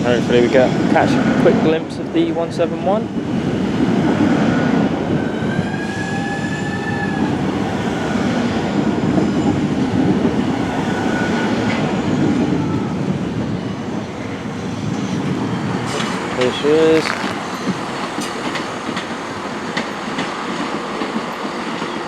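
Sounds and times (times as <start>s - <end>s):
train wheels rumbling on rails: 0.0s - 22.0s
train wheels squealing: 4.4s - 16.6s.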